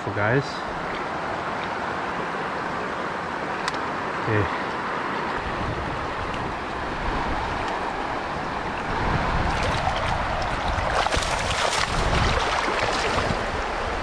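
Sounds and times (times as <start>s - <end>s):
river rushing: 0.0s - 14.0s
splashing in water: 9.2s - 13.8s.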